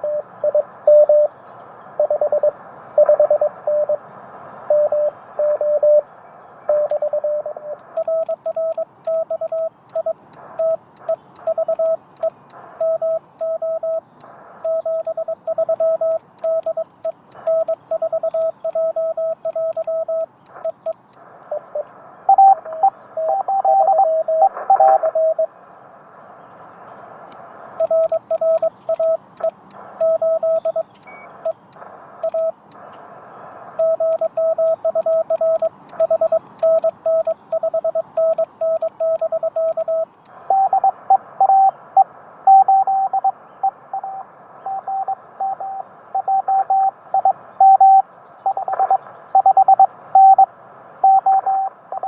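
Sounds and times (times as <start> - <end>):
morse code beeps: 0.0 - 1.3, 2.0 - 4.0, 4.7 - 6.0, 6.7 - 25.4, 27.8 - 32.8, 33.8 - 41.7, 44.0 - 50.5
higher-pitched radio signal: 6.8 - 25.4
radio band hiss: 7.7 - 23.3, 26.8 - 42.4
faint keying clicks: 7.8 - 21.3, 27.3 - 33.0, 33.8 - 40.4.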